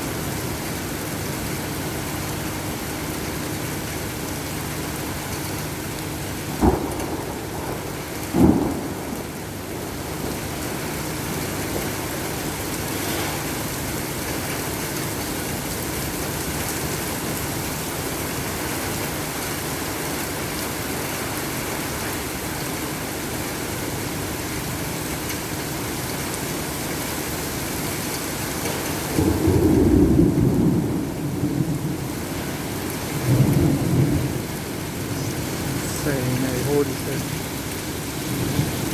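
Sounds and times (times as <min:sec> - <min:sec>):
heavy rain: 0:00.0 - 0:38.9
low thunder rumble: 0:06.3 - 0:16.6, 0:28.6 - 0:38.9.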